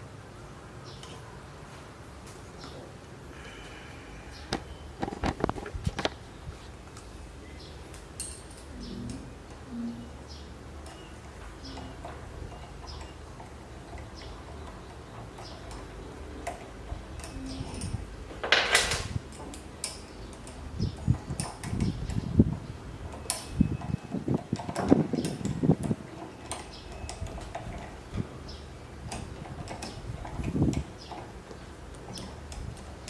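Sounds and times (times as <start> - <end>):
metal parts clicking and clinking: 8.2 - 8.8, 15.4 - 21.9, 23.1 - 23.9.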